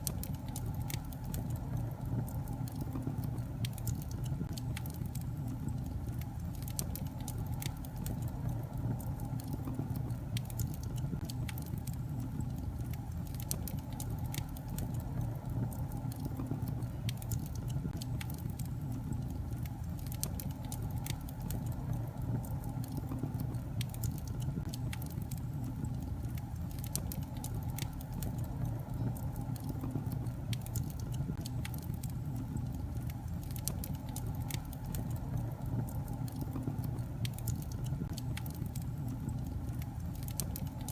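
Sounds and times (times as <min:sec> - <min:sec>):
fireplace fire rumbling: 0:00.0 - 0:40.9
logs crackling and popping: 0:00.0 - 0:40.9.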